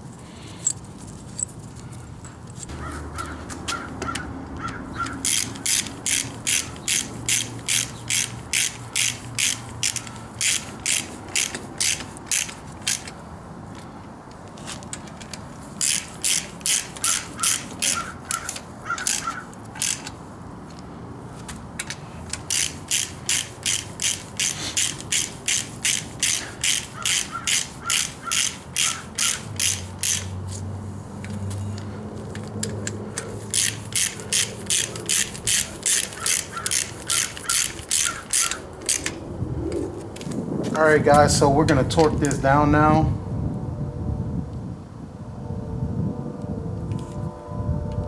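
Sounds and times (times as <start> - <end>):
socket ratchet clicking: 2.5 - 13.9, 14.7 - 20.8, 21.5 - 39.3.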